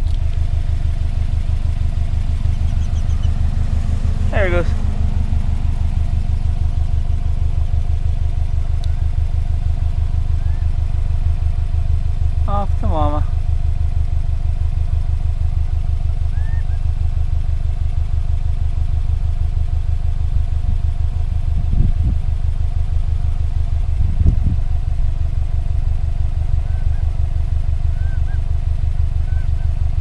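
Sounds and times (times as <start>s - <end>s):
vehicle engine idling: 0.0s - 30.0s
faint bird chirps: 2.3s - 3.5s, 10.2s - 10.8s, 16.2s - 16.9s, 26.5s - 27.2s, 27.8s - 28.5s, 29.1s - 29.8s.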